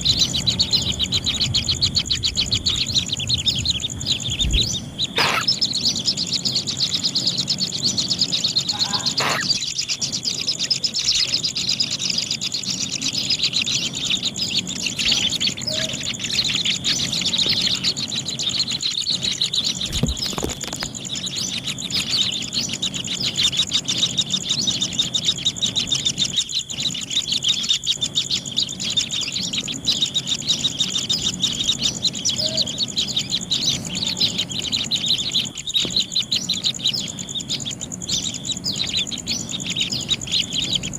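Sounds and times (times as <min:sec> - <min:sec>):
nestlings chirping rapidly: 0:00.0 - 0:40.9
steady high-pitched buzz: 0:00.0 - 0:40.9.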